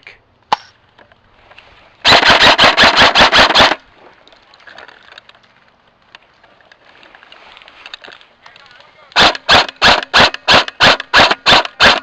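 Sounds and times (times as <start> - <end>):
airsoft rifle rapid firing: 2.0 - 3.8, 9.2 - 12.0
faint distant clicks: 4.1 - 9.2.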